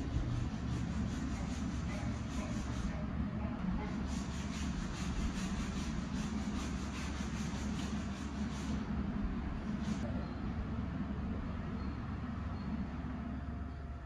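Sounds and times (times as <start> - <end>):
rhythmic rubbing strokes: 0.0 - 9.0
low machine hum: 0.0 - 14.0.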